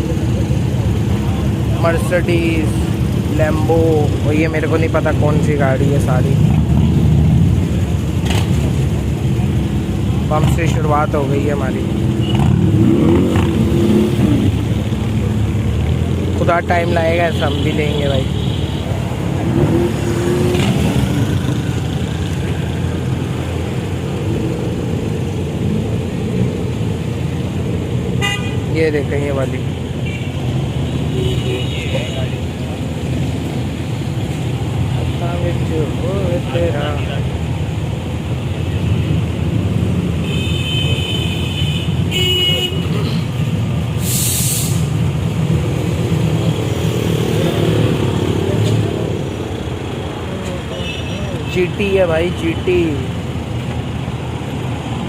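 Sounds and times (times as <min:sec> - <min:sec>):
car engines rumbling: 0:00.0 - 0:55.0
vehicle horn tooting: 0:28.2 - 0:28.7, 0:40.2 - 0:43.0
short hiss: 0:44.0 - 0:44.9.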